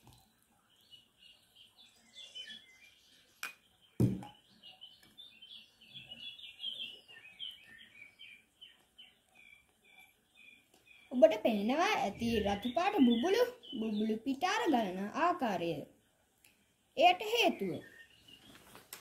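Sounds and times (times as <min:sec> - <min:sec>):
small birds chirping: 0:00.0 - 0:19.0
thump: 0:04.0 - 0:04.3.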